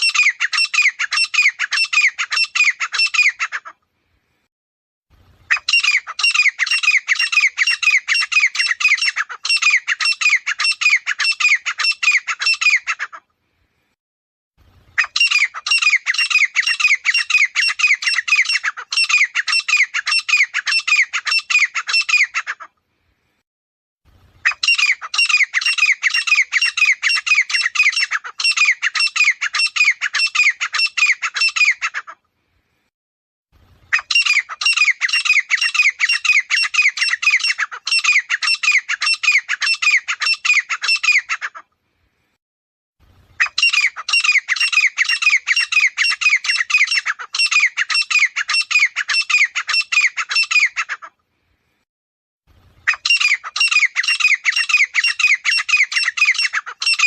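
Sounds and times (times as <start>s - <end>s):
francolin calling harshly: 5.5s - 13.0s, 15.0s - 22.5s, 24.4s - 32.0s, 33.9s - 41.5s, 43.4s - 51.0s, 52.8s - 57.0s.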